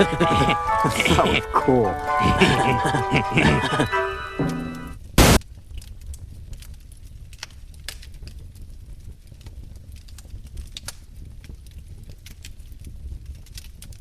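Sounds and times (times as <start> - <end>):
wood fire crackling: 0.0 - 14.0
loud burst of noise: 5.2 - 5.4.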